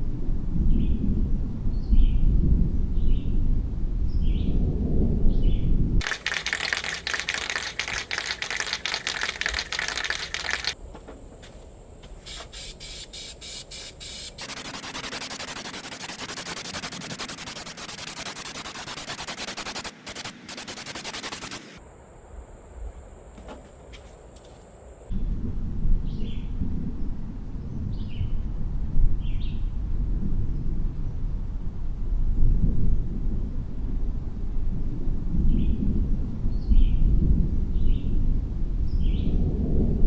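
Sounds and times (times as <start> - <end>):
spray can hissing: 6.0 - 10.8, 12.2 - 21.8
spray can rattling: 6.0 - 10.8, 12.2 - 21.7.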